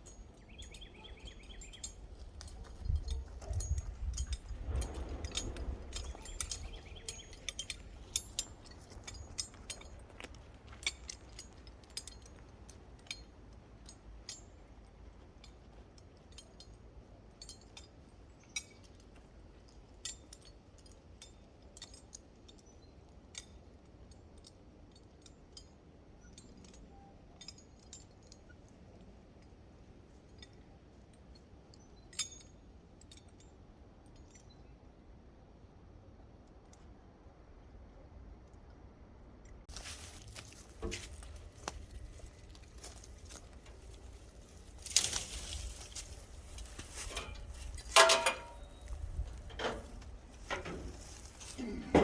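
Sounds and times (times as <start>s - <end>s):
light metallic clicks: 39.4s - 52.0s.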